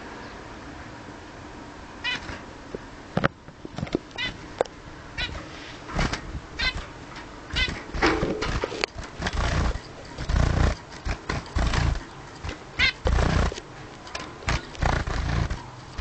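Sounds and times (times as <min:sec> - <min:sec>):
bird chirping: 0:04.1 - 0:05.6, 0:06.6 - 0:16.0
rustling: 0:05.2 - 0:16.0.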